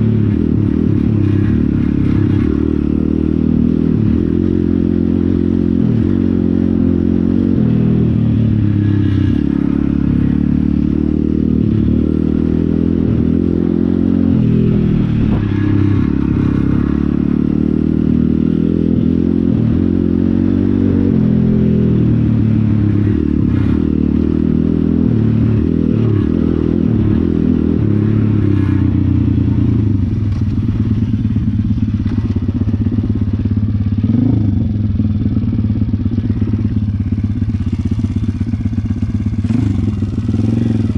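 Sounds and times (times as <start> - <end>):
small motorbike engine revving: 25.0 - 40.9.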